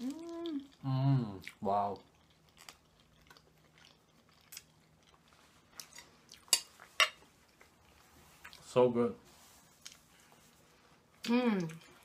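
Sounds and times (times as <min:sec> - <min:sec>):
wet chewing sounds: 0:00.0 - 0:08.7.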